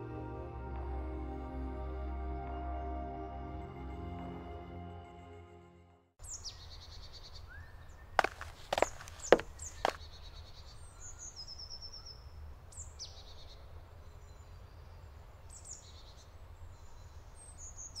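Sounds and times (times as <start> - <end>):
songbirds chirping: 6.2 - 18.0
sharp crunch: 8.2 - 10.1.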